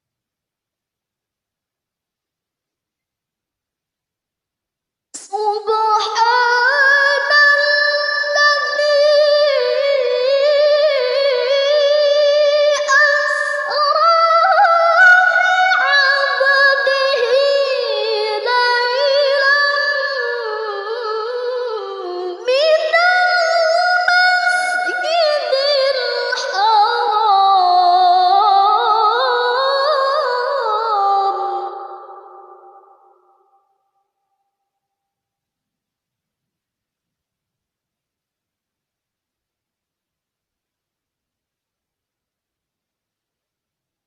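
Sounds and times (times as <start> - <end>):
woman chanting recitation: 5.2 - 33.0.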